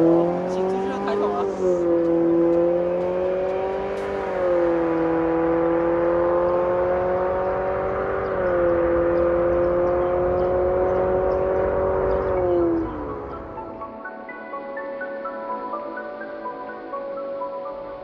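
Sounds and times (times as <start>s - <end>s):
car engine exhaust drone: 0.0s - 14.0s.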